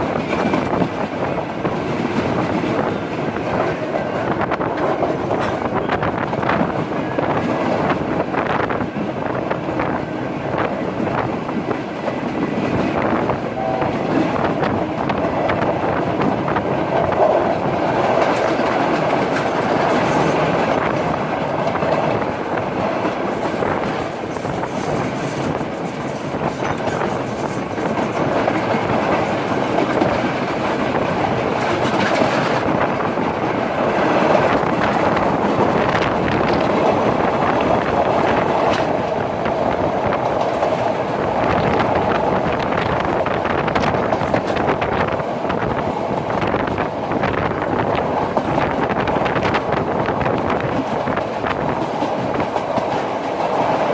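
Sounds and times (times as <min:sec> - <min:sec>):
train carriages rumbling: 0:00.0 - 0:53.9
wheels clicking over rail joints: 0:14.0 - 0:53.9.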